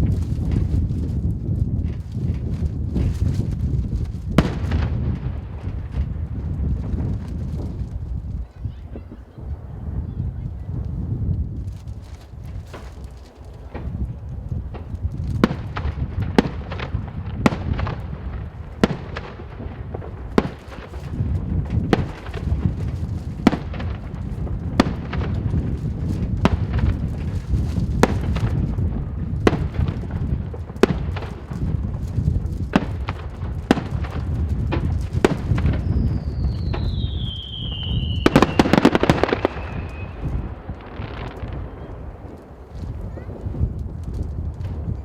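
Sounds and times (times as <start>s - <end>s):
low rumble and crackle: 0.0s - 45.0s
firework shells bursting: 11.7s - 44.9s.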